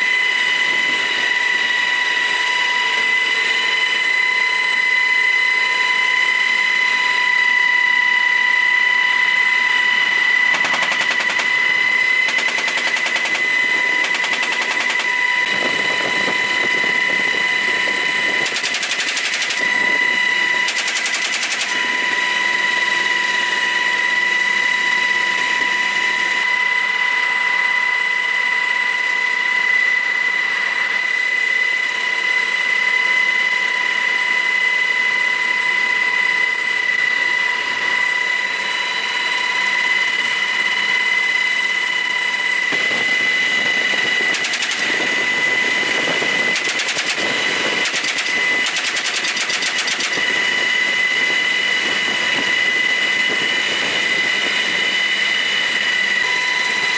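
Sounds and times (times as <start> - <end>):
helicopter cabin whine: 0.0 - 56.9
machine gun bursts: 10.5 - 15.2, 18.4 - 19.7, 20.6 - 21.7, 44.2 - 45.4, 46.0 - 50.4.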